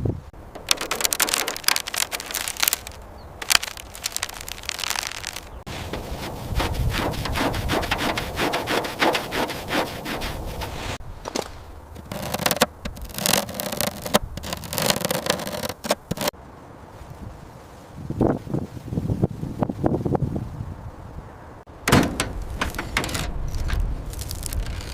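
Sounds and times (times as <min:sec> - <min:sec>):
rapid scraping strokes: 0:00.6 - 0:11.0, 0:12.0 - 0:16.3.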